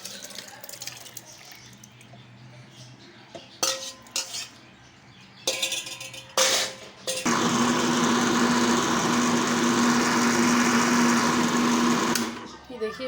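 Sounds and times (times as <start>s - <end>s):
blender motor humming: 7.3s - 12.5s.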